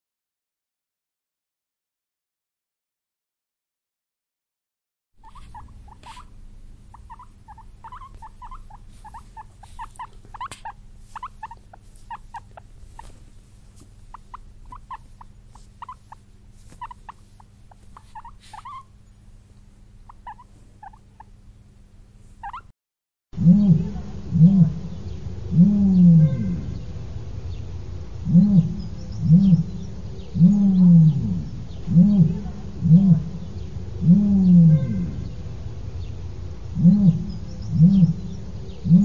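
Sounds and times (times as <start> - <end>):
guinea pigs squeaking: 5.2 - 19.2, 20.0 - 21.4, 22.4 - 22.7
steady low hum: 5.2 - 22.6, 23.4 - 39.0.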